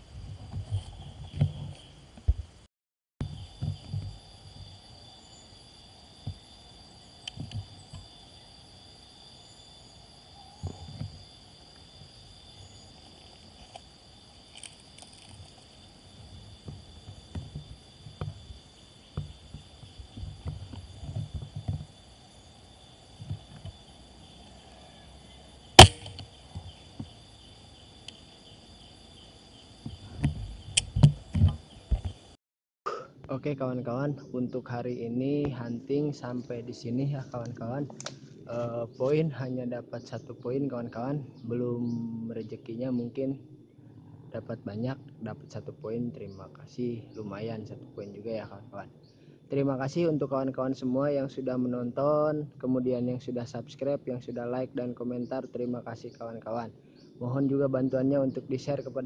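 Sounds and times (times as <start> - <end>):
low bumps and rustles: 3.2 - 4.8
small clicks: 14.5 - 15.6
air rifle shot: 25.8 - 26.2.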